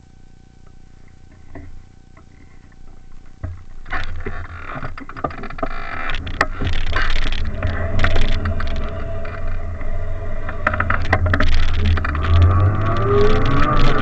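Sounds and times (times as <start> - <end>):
faint clicks: 0.6 - 14.0
knocks and rattles: 2.9 - 14.0.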